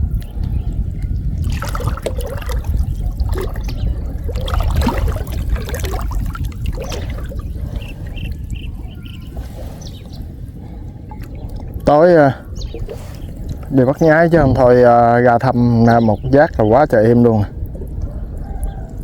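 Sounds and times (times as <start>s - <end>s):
water splashing and trickling: 1.0s - 18.1s.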